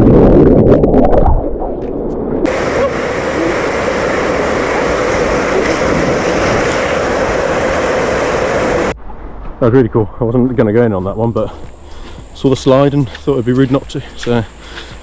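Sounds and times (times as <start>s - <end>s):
flowing and falling water: 2.5s - 9.0s.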